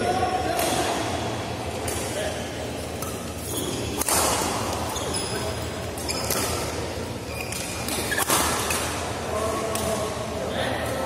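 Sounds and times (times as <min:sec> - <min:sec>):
court shoes squeaking: 0:01.8 - 0:10.0
racket hitting shuttlecock: 0:03.9 - 0:04.9.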